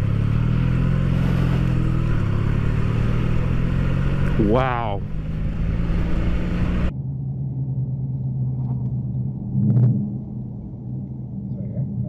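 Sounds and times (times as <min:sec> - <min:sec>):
car engine hum: 0:00.0 - 0:12.0
road noise: 0:00.0 - 0:12.0.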